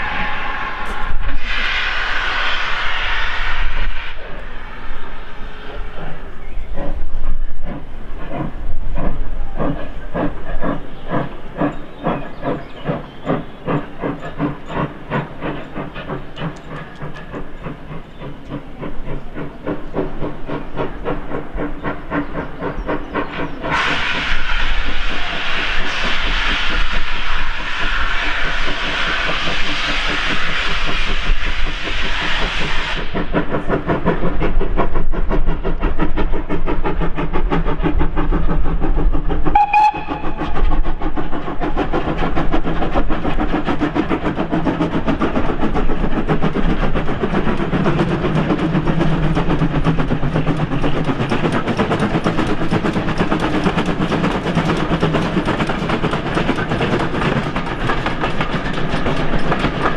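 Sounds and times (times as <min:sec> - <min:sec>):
steam whistle: 0:00.0 - 0:05.2, 0:39.5 - 0:40.5
steam hiss: 0:00.0 - 0:59.9
train wheels clattering on rails: 0:05.6 - 0:59.9.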